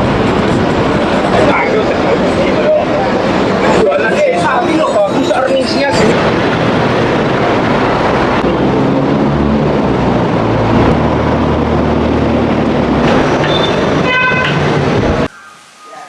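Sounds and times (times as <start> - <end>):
train rumbling: 0.0 - 15.5
low hum: 6.0 - 15.4
high ringing tone: 15.3 - 16.0.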